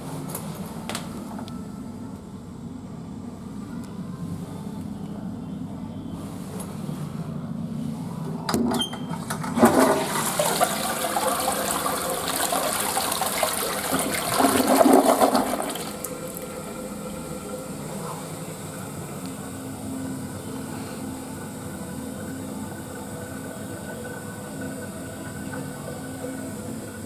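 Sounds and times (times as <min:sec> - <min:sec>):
toilet flush click: 0:08.5 - 0:16.7
toilet flushing water rush: 0:09.1 - 0:27.0.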